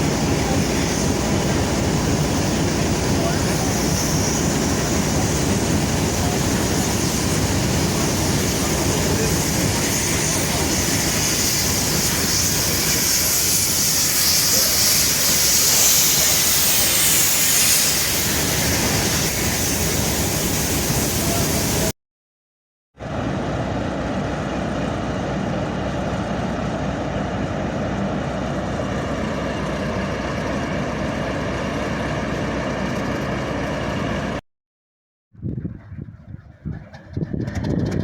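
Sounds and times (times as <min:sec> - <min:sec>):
diesel locomotive engine hum: 0:00.0 - 0:21.9, 0:23.0 - 0:34.4, 0:35.4 - 0:38.0
loud hissing rush: 0:00.0 - 0:21.9.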